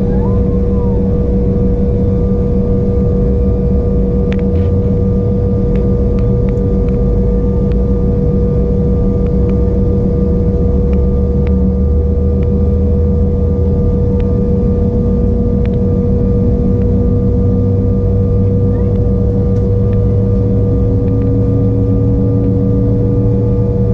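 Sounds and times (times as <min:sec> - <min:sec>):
steady tone: 0:00.0 - 0:04.0, 0:14.2 - 0:23.9
jet engine cabin hum: 0:00.0 - 0:23.9.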